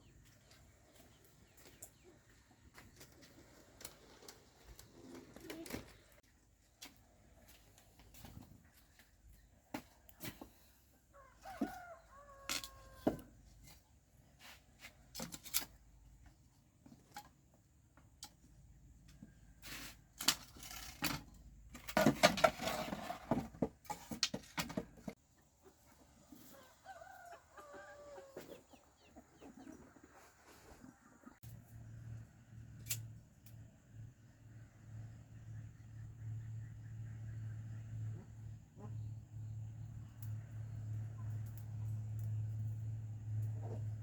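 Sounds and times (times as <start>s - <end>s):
rooster crowing: 11.1s - 13.2s, 26.5s - 28.5s.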